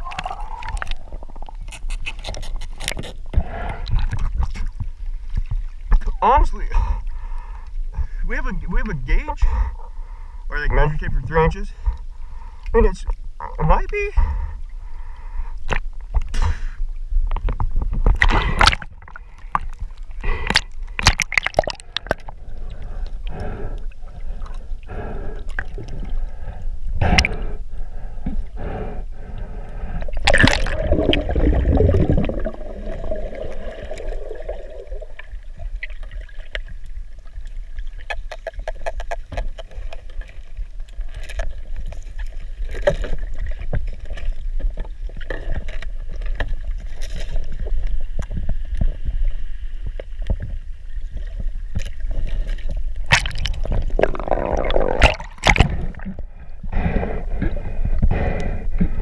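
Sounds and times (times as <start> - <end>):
underwater water gurgling: 0.0 - 59.0
rushing gurgle: 18.1 - 27.6, 29.8 - 36.6, 53.0 - 58.2.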